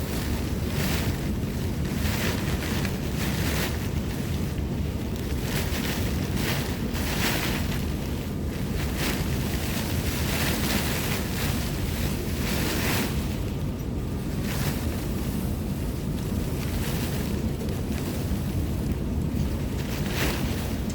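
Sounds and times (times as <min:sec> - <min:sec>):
gusting wind: 0:00.0 - 0:20.9
wind buffeting microphone: 0:00.0 - 0:20.9.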